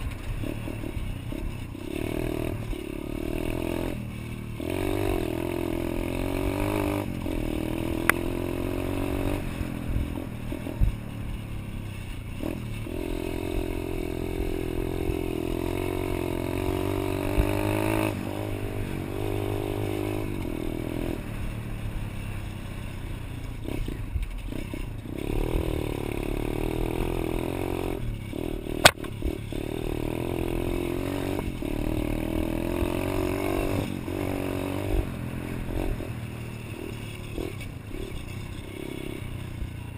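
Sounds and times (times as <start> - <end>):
pit bike engine revving: 0.0 - 39.9
sharp clack: 28.7 - 29.5.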